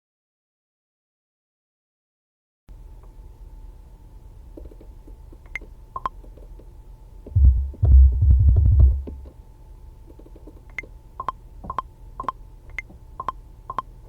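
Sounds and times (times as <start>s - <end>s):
faint steady hum: 2.7s - 14.0s
deep synthesized bass pulses: 7.4s - 9.3s.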